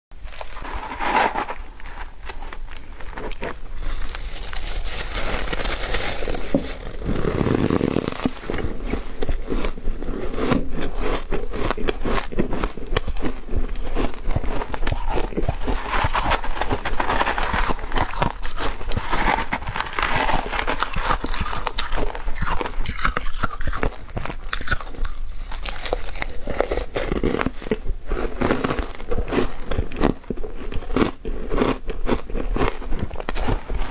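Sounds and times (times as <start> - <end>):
person chewing ice: 0.2 - 33.9.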